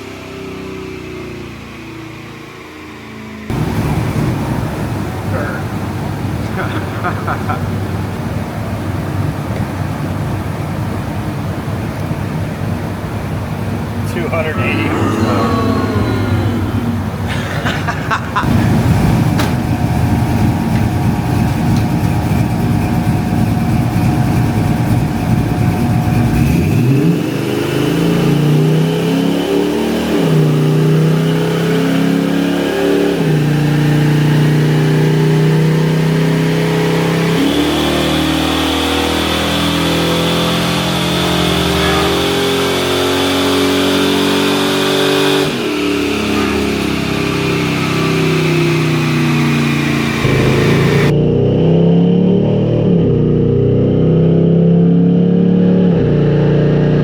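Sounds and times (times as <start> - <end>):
car engine rumbling and accelerating: 0.0 - 57.0.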